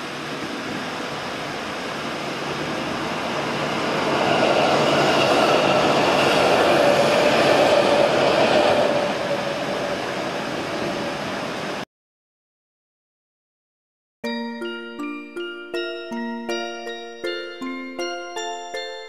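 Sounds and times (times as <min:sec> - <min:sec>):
electric train passing: 0:00.0 - 0:11.8, 0:14.3 - 0:19.0.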